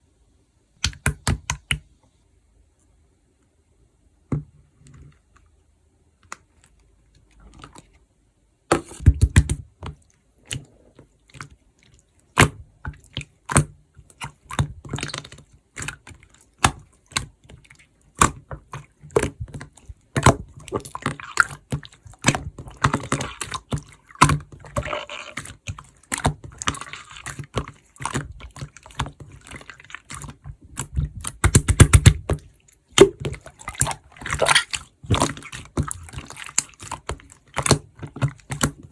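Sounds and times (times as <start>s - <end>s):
slime squelching by hand: 8.8s - 38.9s.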